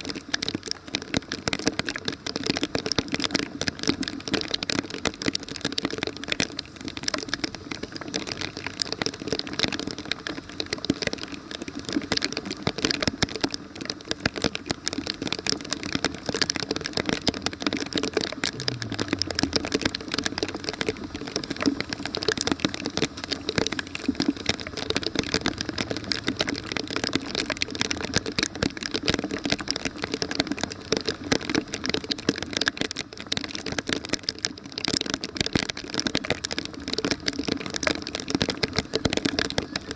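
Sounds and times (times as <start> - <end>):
heavy rain pattering: 0.0 - 39.9
low falling hum: 18.5 - 22.2.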